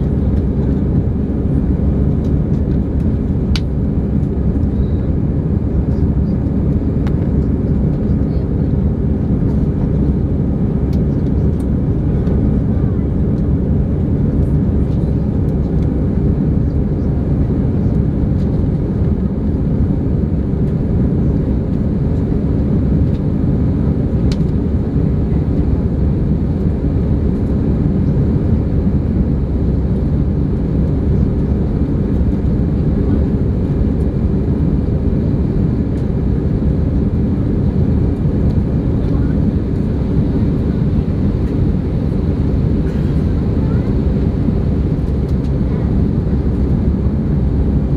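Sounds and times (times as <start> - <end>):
jet engine cabin roar: 0.0 - 47.9.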